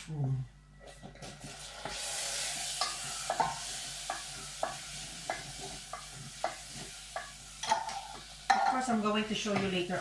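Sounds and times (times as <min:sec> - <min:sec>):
mushrooms sizzling in a frying pan: 0:01.2 - 0:10.0
spatula tapping a pan: 0:02.8 - 0:10.0.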